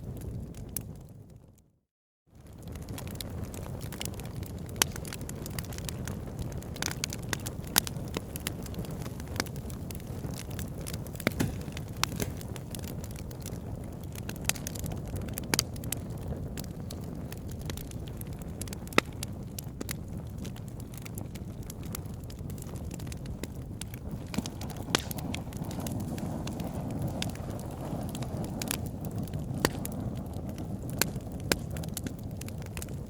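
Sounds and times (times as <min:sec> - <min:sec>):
campfire crackling and popping: 0:00.0 - 0:01.4, 0:02.4 - 0:33.0.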